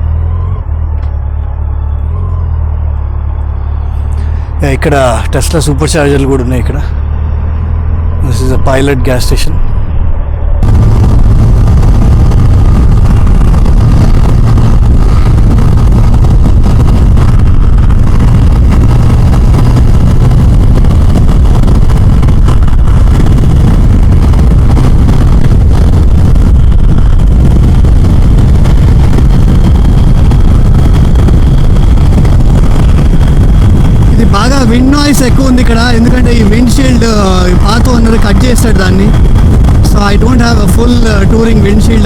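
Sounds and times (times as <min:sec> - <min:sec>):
wind buffeting microphone: 0:06.7 - 0:42.0
motorcycle engine running: 0:09.6 - 0:36.0.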